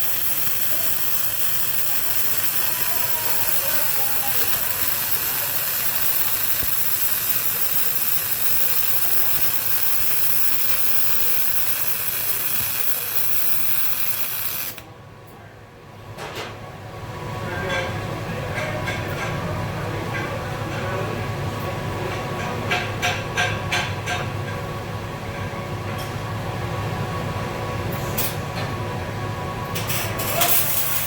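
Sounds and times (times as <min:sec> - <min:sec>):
welding arc hissing crackle: 0:00.0 - 0:14.8, 0:29.8 - 0:31.0.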